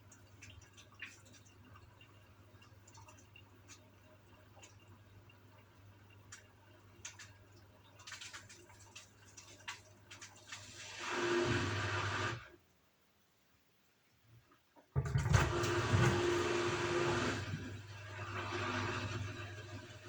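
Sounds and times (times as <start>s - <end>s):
water splashing and dripping: 0.0s - 11.0s
washing machine humming: 0.0s - 12.5s, 14.9s - 20.0s.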